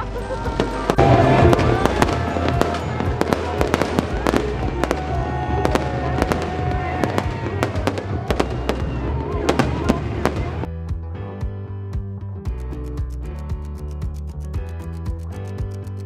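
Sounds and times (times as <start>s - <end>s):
fireworks bangs and crackles: 0.0s - 10.7s
music: 0.0s - 16.0s.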